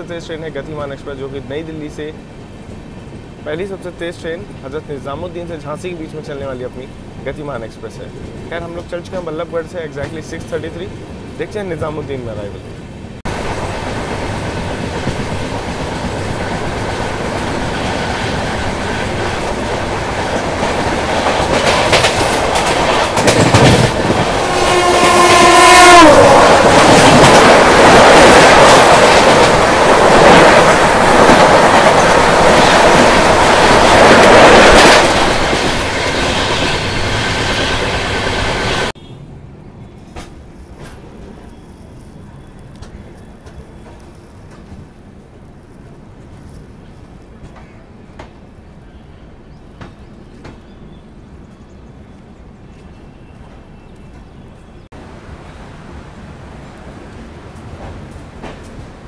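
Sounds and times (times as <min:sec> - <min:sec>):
passenger train running: 0:00.0 - 0:59.0
rush of passing train coaches: 0:00.0 - 0:59.0
locomotive horn: 0:24.4 - 0:26.7.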